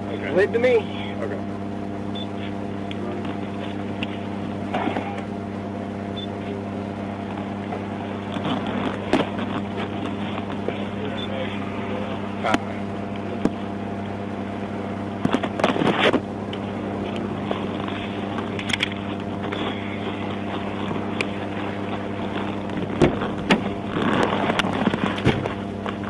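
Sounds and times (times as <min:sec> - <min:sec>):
vehicle engine idling: 0:20.8 - 0:26.0.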